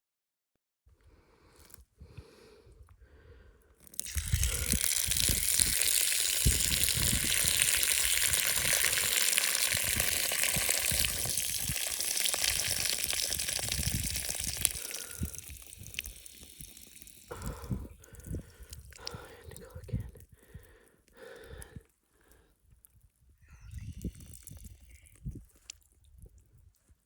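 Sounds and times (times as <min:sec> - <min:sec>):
person urinating outdoors: 0:03.8 - 0:23.0, 0:23.6 - 0:27.0
wind buffeting microphone: 0:04.1 - 0:05.8, 0:06.4 - 0:09.1, 0:13.4 - 0:16.0, 0:23.4 - 0:26.6.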